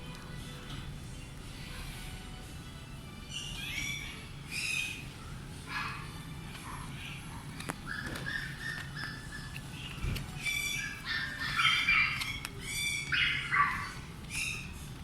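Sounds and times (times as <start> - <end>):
puppy whining and yelping: 3.3 - 5.1, 5.7 - 14.9.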